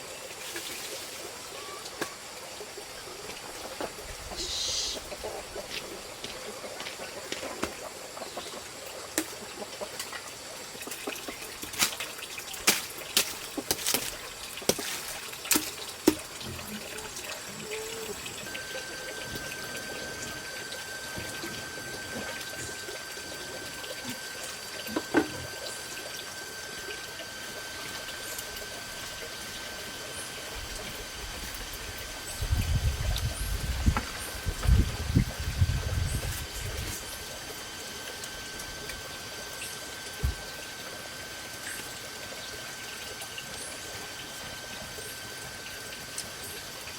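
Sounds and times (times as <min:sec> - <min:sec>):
water trickling: 0:00.1 - 0:46.9
steady high-pitched tone: 0:16.4 - 0:30.8.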